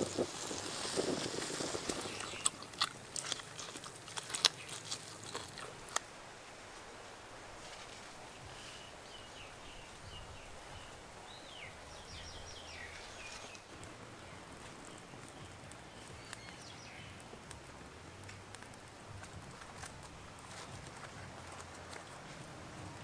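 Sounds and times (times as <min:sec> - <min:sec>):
faint outdoor background noise: 0:00.0 - 0:23.0
wild birds chirping and whistling: 0:01.5 - 0:02.6, 0:08.4 - 0:17.3.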